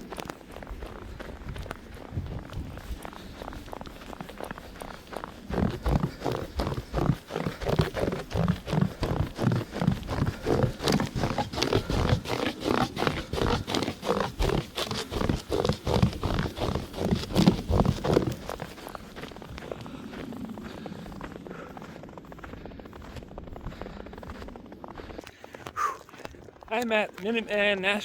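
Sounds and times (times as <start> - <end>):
heavy breathing: 0.0 - 27.3
footsteps running on snow: 0.0 - 28.0.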